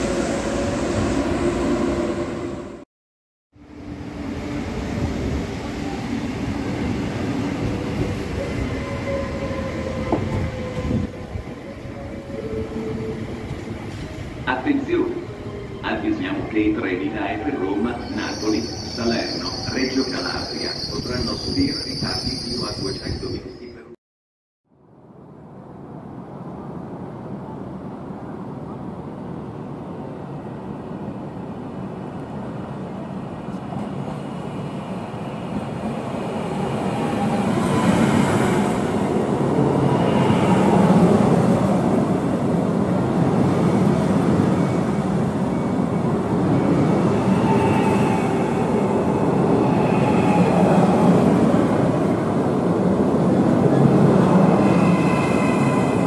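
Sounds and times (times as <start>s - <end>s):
passenger train rumbling: 0.0s - 2.8s, 3.6s - 23.9s, 25.0s - 56.0s
high train squeals: 7.5s - 14.4s, 15.2s - 23.9s, 43.4s - 51.3s, 54.4s - 56.0s.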